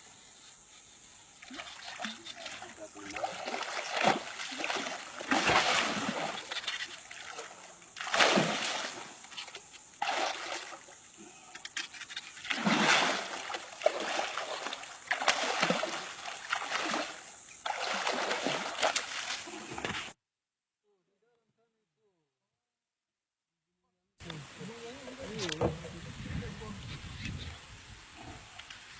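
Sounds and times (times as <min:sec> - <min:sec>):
water splashing in surges: 0:01.4 - 0:11.0, 0:12.4 - 0:20.2.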